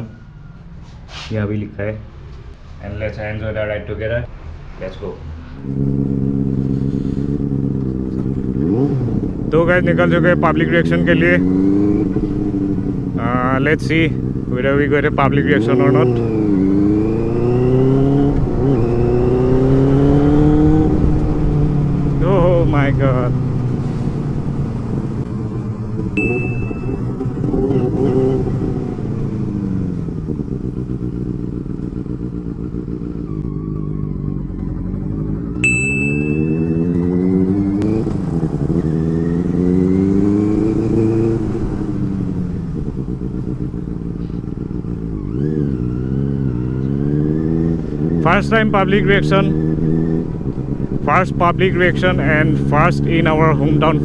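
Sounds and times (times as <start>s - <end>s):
motorcycle engine accelerating: 5.5s - 54.0s.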